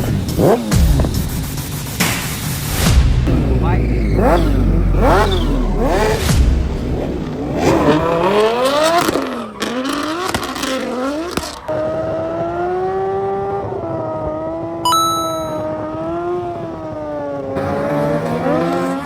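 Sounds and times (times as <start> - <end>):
engine revving hard: 2.8 - 11.6, 17.6 - 19.0.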